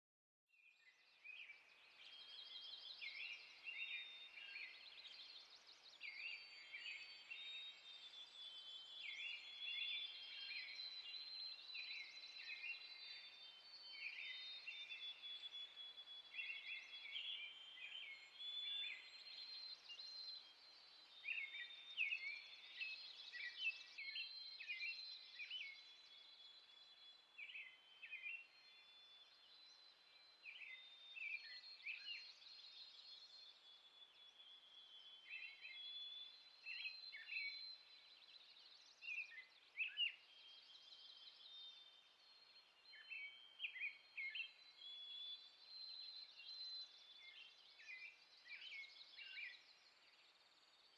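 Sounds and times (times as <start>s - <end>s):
songbirds chirping: 0.6s - 50.9s.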